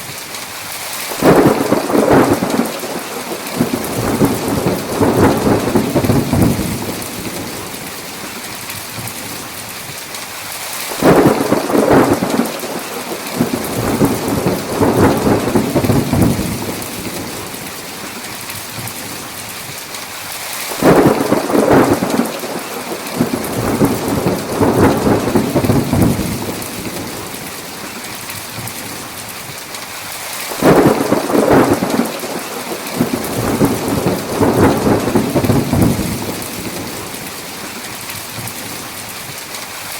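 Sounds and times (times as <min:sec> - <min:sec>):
heavy rain hissing: 0:00.0 - 0:39.9
thunder claps rumbling: 0:01.2 - 0:08.1, 0:10.9 - 0:18.1, 0:20.7 - 0:28.0, 0:30.5 - 0:37.8.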